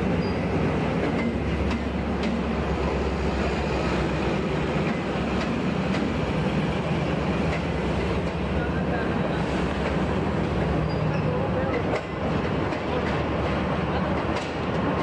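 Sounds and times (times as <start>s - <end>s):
locomotive engine drone: 0.0s - 15.0s
wheels clicking over rail joints: 1.0s - 2.6s, 7.4s - 8.8s, 10.9s - 15.0s.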